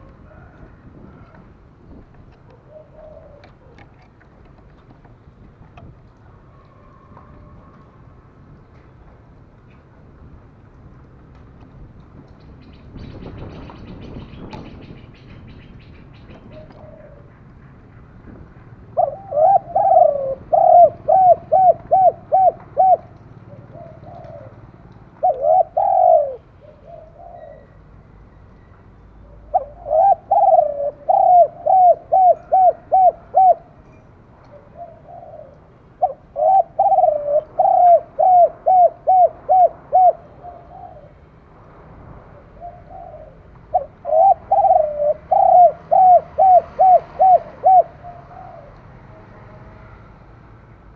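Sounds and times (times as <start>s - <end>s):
dove cooing: 2.3s - 4.1s, 15.6s - 17.4s, 19.0s - 27.8s, 29.2s - 33.8s, 34.5s - 41.2s, 42.3s - 48.9s.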